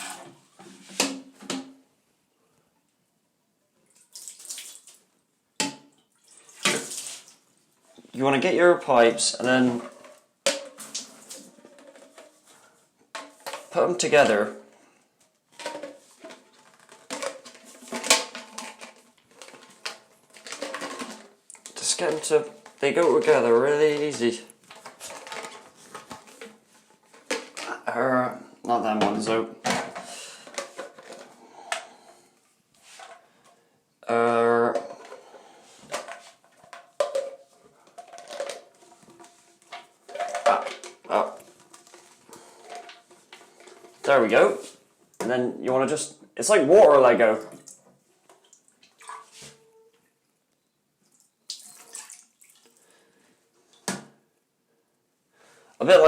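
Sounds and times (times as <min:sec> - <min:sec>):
pipes clicking and knocking: 0:08.0 - 0:27.9, 0:28.6 - 0:32.1, 0:34.6 - 0:45.8.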